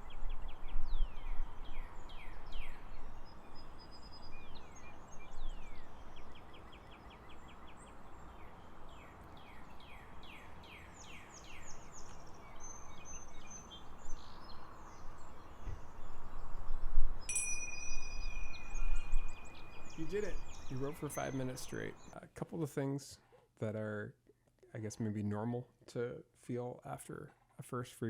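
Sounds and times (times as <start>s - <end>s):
birds singing: 0.0s - 22.2s.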